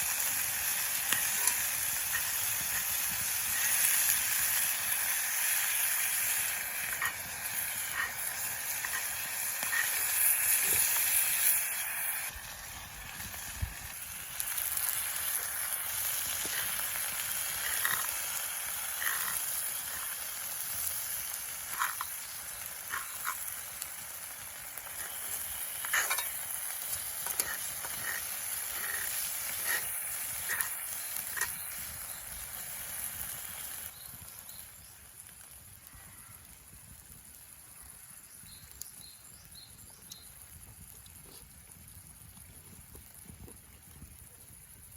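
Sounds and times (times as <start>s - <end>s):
sharp pops and spits: 0.0s - 34.4s, 40.1s - 44.2s
steak sizzling in a pan: 0.0s - 44.9s.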